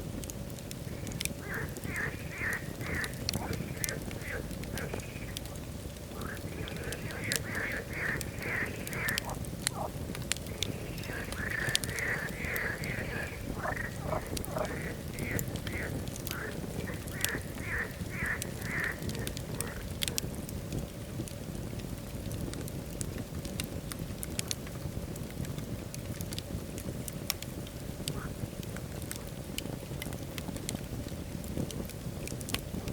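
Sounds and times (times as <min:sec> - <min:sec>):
wood fire crackling: 0:00.0 - 0:32.9
short repeated animal calls: 0:00.9 - 0:09.9, 0:10.5 - 0:20.2.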